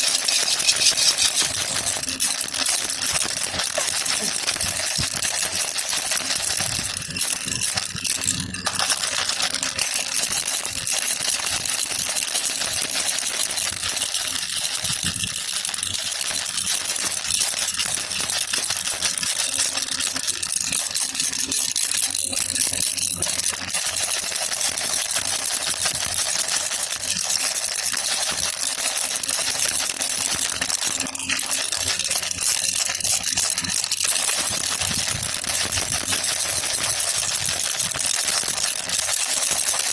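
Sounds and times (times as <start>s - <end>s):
baby rattle shaken: 0.0s - 39.9s.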